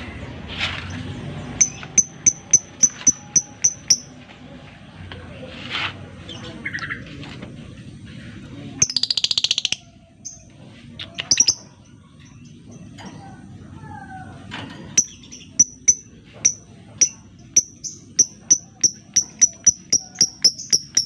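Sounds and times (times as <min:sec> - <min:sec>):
lovebird chirping: 0:01.3 - 0:04.2, 0:14.9 - 0:21.0.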